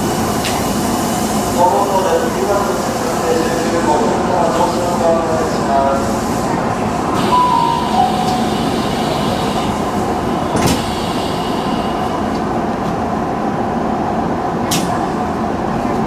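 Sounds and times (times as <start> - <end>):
short steady tone: 7.3 - 9.3.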